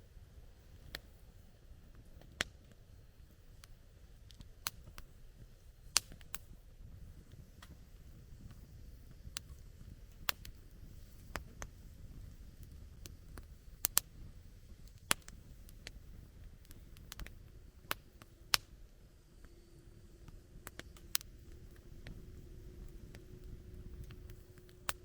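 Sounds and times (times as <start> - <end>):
burning fire rumble: 0.0 - 19.2, 19.8 - 25.0
fire pops and snaps: 0.6 - 1.2, 1.9 - 18.9, 20.2 - 25.0.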